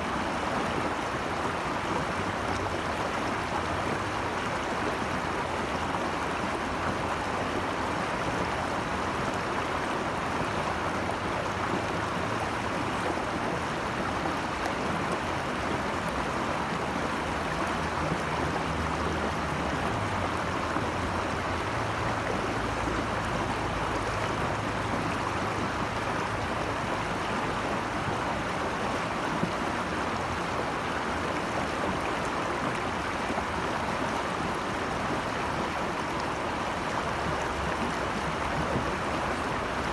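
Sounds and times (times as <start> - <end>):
rush of flowing water: 0.0 - 39.9.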